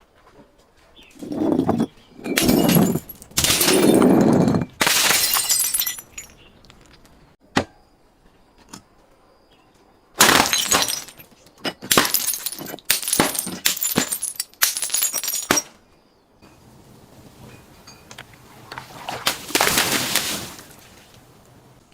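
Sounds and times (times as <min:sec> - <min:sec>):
glass shattering and crunching: 0:01.2 - 0:07.1, 0:10.2 - 0:15.8.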